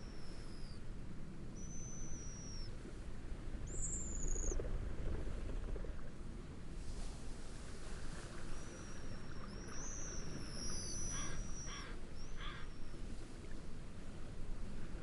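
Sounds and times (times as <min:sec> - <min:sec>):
thin high whistling bird calls: 0:00.0 - 0:00.8, 0:01.6 - 0:02.8, 0:03.7 - 0:04.6, 0:08.4 - 0:13.0
low wind: 0:00.0 - 0:15.0.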